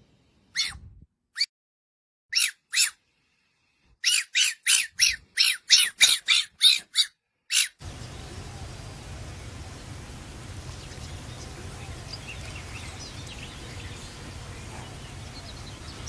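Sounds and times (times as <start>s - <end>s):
outdoor background hiss: 0.0s - 0.6s, 7.8s - 16.0s
harsh animal squawks: 0.6s - 0.8s, 2.3s - 3.0s, 4.0s - 7.8s.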